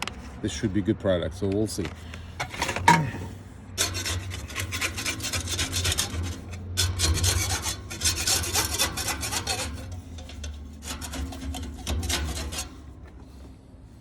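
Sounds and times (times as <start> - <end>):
wire brush scrubbing metal pipe: 2.4 - 13.3.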